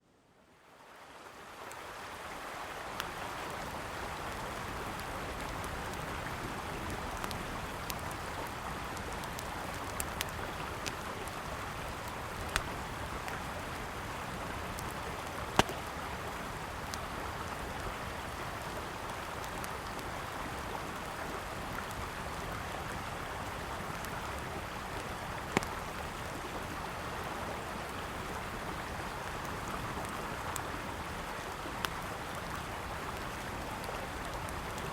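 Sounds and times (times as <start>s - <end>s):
campfire pops and crackles: 4.2s - 18.4s, 23.6s - 26.4s.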